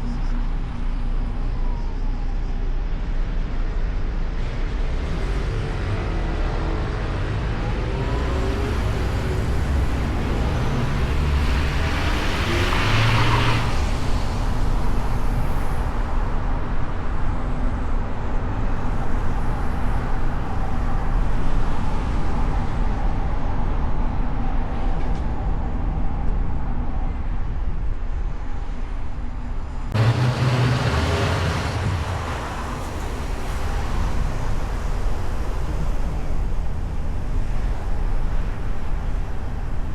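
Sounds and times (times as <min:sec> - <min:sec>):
car road and engine rumble: 0:00.0 - 0:39.9
vehicles passing: 0:05.0 - 0:15.6, 0:29.9 - 0:35.5.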